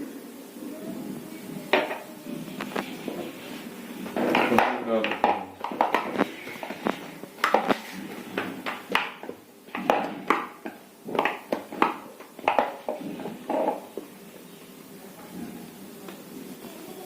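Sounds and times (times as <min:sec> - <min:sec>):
dough knocking and slapping: 0:04.1 - 0:14.1.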